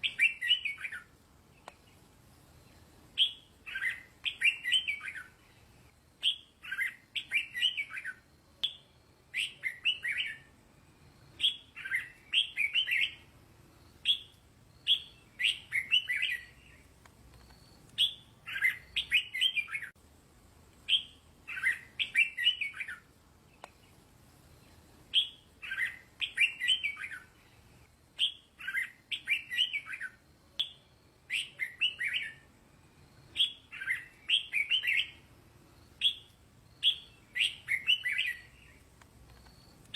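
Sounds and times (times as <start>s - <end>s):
bird singing short phrases: 0.0s - 1.1s, 3.2s - 5.4s, 6.2s - 10.5s, 11.3s - 13.3s, 13.9s - 19.9s, 20.9s - 23.0s, 25.1s - 27.4s, 28.2s - 32.5s, 33.2s - 35.2s, 36.0s - 39.9s.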